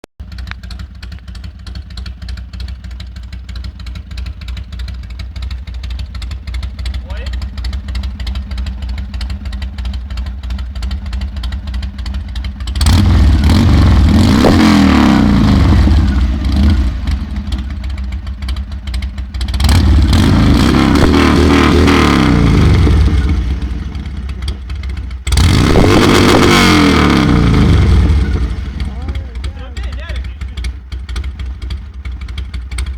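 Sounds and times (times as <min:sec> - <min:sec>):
motorcycle engine idling and revving: 0:00.0 - 0:32.9.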